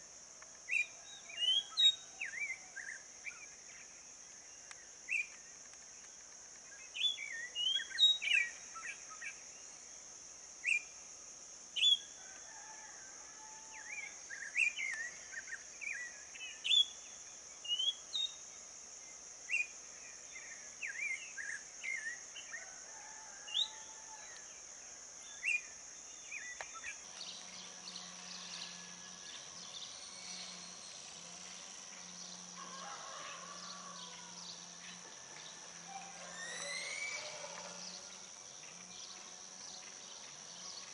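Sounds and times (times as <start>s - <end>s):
high-pitched buzz: 27.0s - 40.9s
birds chirping and whistling: 27.2s - 32.4s, 35.6s - 38.2s.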